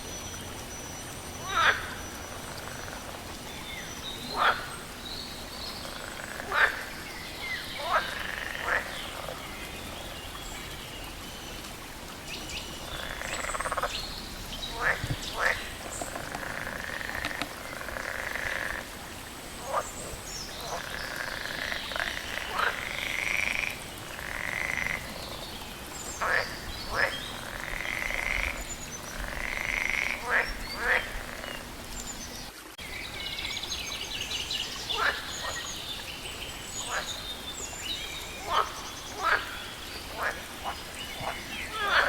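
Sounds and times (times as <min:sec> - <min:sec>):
frog clicking calls: 0:01.4 - 0:03.2, 0:07.8 - 0:09.3, 0:12.8 - 0:14.0, 0:14.7 - 0:18.9, 0:20.6 - 0:25.2, 0:26.2 - 0:31.6, 0:34.9 - 0:35.7, 0:38.4 - 0:42.0
frogs croaking in chorus: 0:01.4 - 0:10.1, 0:12.6 - 0:32.1, 0:34.1 - 0:42.0.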